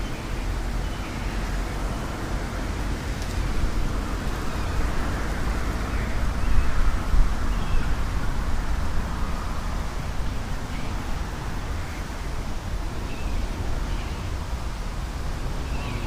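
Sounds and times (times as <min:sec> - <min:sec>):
wind buffeting microphone: 0:01.8 - 0:14.3.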